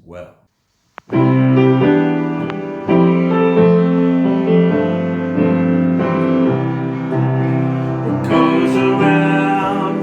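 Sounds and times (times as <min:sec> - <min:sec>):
piano playing sustained chords: 0:01.1 - 0:10.0
person singing: 0:08.0 - 0:10.0.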